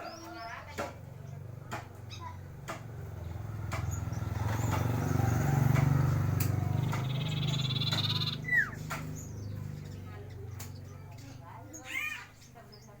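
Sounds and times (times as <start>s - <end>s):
bird singing trills and whistles: 6.7s - 9.6s.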